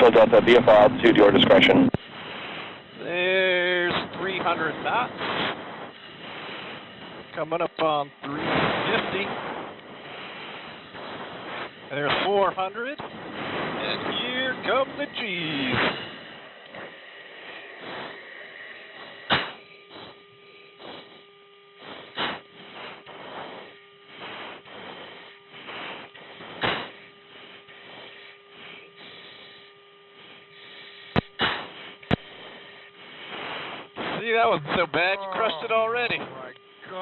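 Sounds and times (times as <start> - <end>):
intercom hum and hiss: 0.0 - 37.0
sharp breaths through mask microphone: 2.0 - 3.0, 5.1 - 7.3, 8.5 - 11.9, 15.2 - 34.2.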